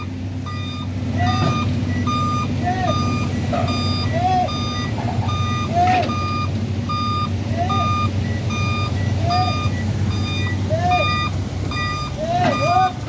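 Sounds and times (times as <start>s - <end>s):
reversing alarm beeping: 0.0s - 13.0s
truck engine running: 0.0s - 13.0s.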